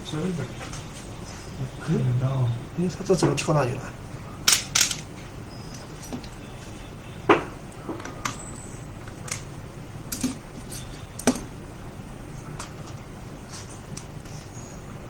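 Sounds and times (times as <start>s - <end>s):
clicks of laptop parts handled: 4.5s - 5.0s.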